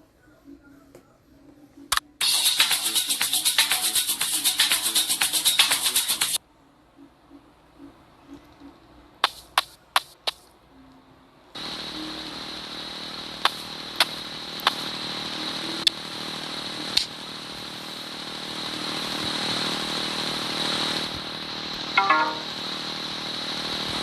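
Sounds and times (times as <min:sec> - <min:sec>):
small motorcycle engine running: 0:11.6 - 0:24.0.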